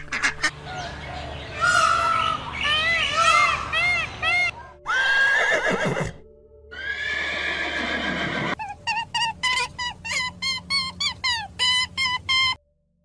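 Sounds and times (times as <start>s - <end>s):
horse whinnying: 4.9s - 8.6s.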